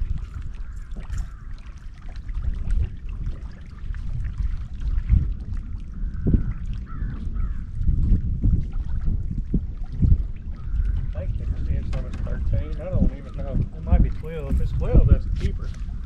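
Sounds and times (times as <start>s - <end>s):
wind and water rumble: 0.0s - 16.0s.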